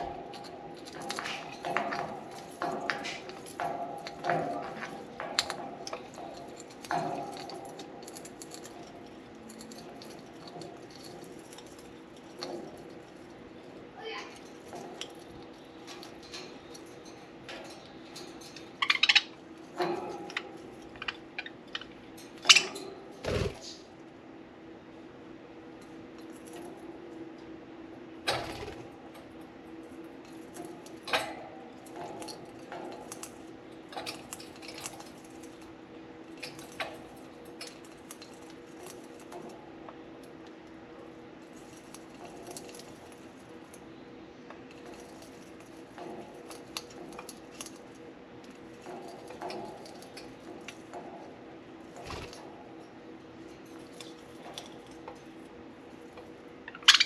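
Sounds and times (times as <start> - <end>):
birds chewing wooden toy: 0.0 - 22.0, 44.5 - 52.4.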